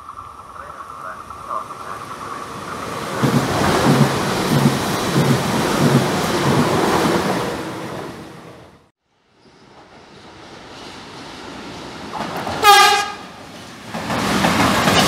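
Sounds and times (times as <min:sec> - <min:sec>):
train passing at speed: 0:00.0 - 0:15.0
wheels clattering on track: 0:13.4 - 0:15.0.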